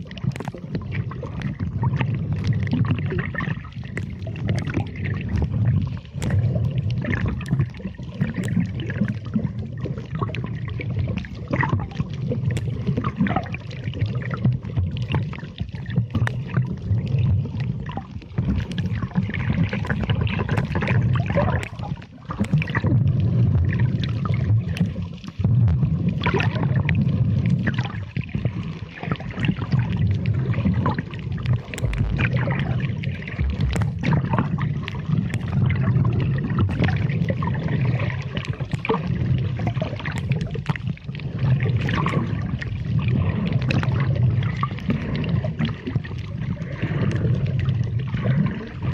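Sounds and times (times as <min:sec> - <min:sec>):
underwater sloshing and gurgling: 0:00.0 - 0:48.9
small clicks: 0:33.5 - 0:34.1.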